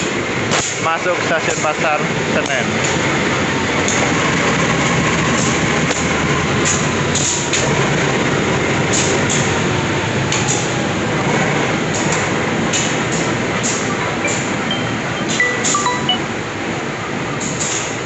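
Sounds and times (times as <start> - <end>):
locomotive and coaches rumbling: 0.0 - 17.3
short sharp high-pitched sounds: 14.0 - 16.4.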